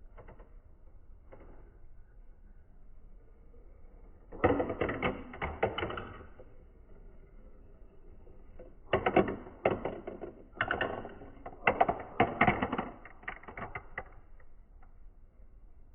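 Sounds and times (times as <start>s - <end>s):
marbles clicking along a track: 4.3s - 15.0s.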